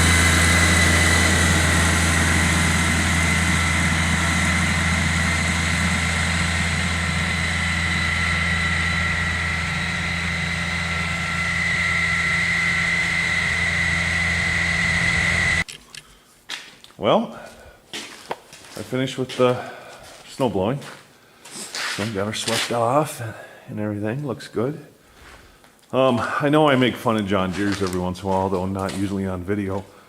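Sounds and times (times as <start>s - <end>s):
high whine: 0.0s - 15.7s
tractor engine running: 0.0s - 15.7s.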